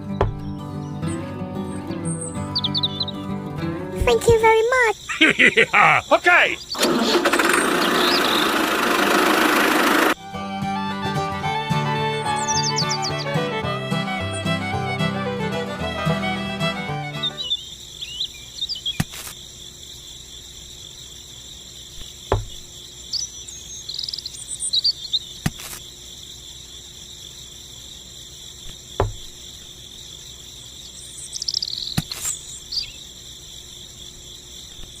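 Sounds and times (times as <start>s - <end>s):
bird chirps: 0.0s - 3.3s, 4.3s - 8.8s, 12.2s - 13.5s, 17.1s - 19.1s, 22.0s - 25.4s, 30.8s - 33.0s
insects trilling: 0.0s - 35.0s
sharp knock: 29.0s - 29.3s.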